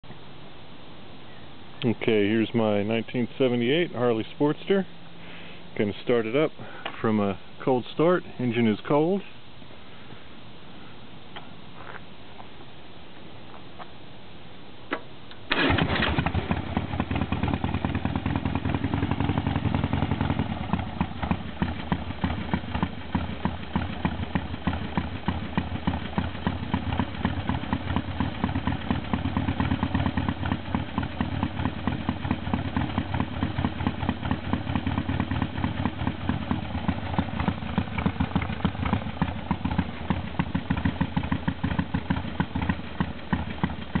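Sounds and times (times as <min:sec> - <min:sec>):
motorcycle engine starting and idling: 0:14.9 - 0:44.0.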